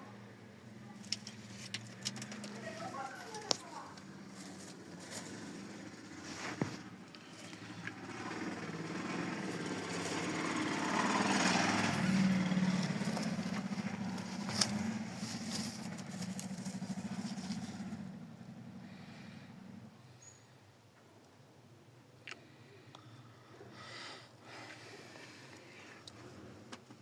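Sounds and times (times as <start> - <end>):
small engine passing by: 1.4 - 20.3.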